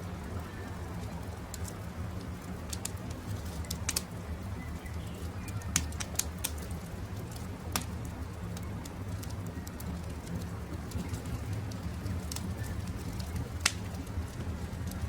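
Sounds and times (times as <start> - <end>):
campfire crackling and popping: 0.0 - 15.0
low steady rumble: 0.0 - 15.0
birds calling faintly: 3.3 - 7.3.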